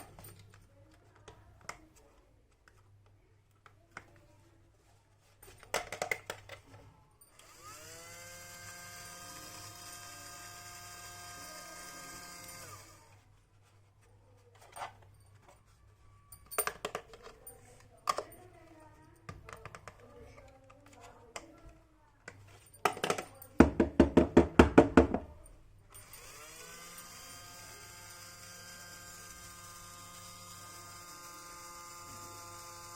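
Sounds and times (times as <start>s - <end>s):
small electric motor whirring: 7.3s - 13.2s, 25.9s - 32.9s.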